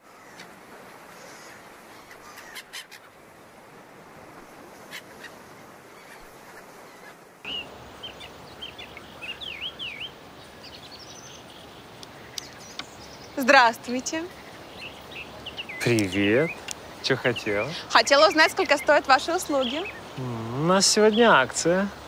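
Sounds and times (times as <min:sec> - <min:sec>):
faint background hiss: 0:00.0 - 0:22.0
small birds chirping: 0:04.8 - 0:22.0.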